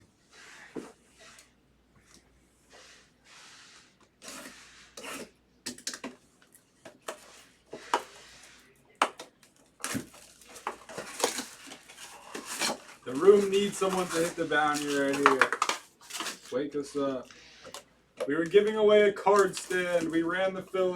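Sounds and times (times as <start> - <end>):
card packaging rustling: 6.9 - 20.9.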